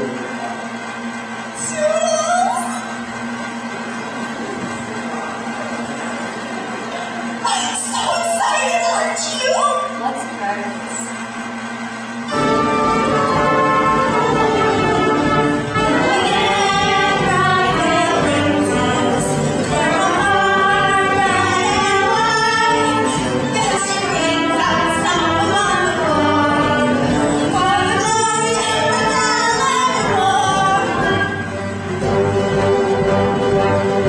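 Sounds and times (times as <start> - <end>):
voices singing: 12.3 - 33.8
instrumental accompaniment: 12.3 - 34.0.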